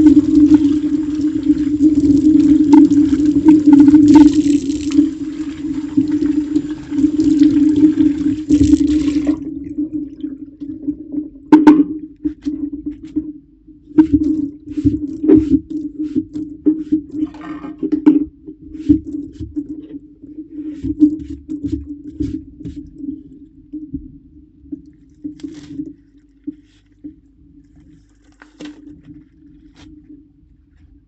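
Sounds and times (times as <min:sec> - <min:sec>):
tap water running into sink: 0:00.0 - 0:09.6.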